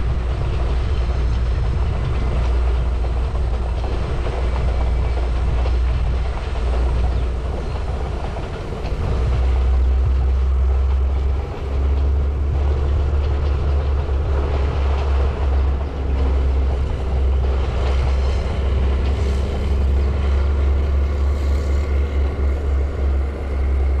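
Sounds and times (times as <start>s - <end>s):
distant passenger train running: 0.0s - 24.0s
wind buffeting microphone: 0.0s - 24.0s.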